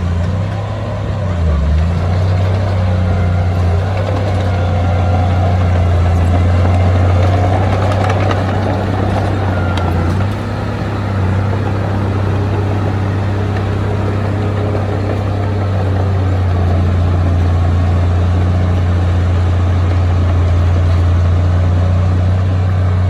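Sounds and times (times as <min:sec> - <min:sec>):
diesel engine droning: 0:00.0 - 0:23.0.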